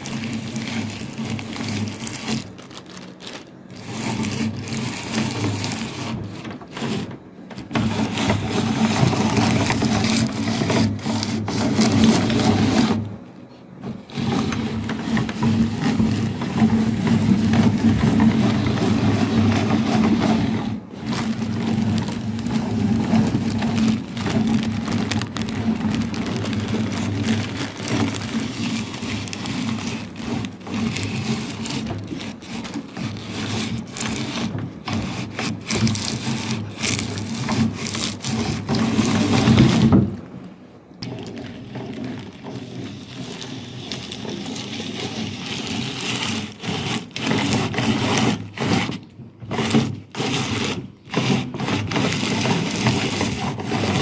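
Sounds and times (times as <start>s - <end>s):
meat grinder motor hum: 0.0s - 13.2s, 13.8s - 40.1s, 41.0s - 54.0s
popcorn crackling in grinder: 0.0s - 54.0s.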